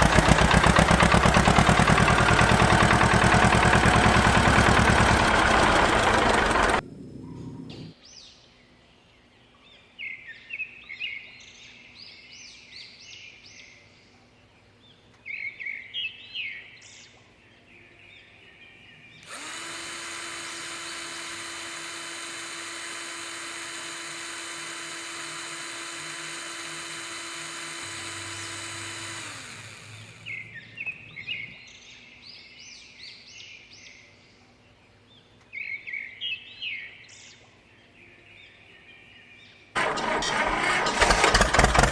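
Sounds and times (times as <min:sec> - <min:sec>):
small motor running: 0:00.0 - 0:06.8, 0:19.2 - 0:31.6, 0:39.8 - 0:41.9
birds chirping: 0:00.0 - 0:12.7, 0:17.3 - 0:39.9.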